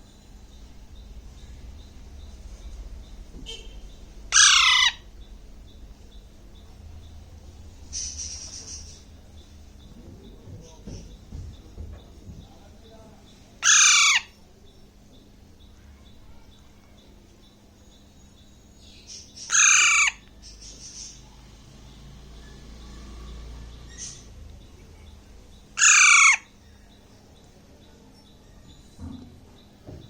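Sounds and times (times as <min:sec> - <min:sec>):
parakeet screeching: 0:04.3 - 0:05.2, 0:13.6 - 0:14.4, 0:19.4 - 0:20.3, 0:25.8 - 0:26.6.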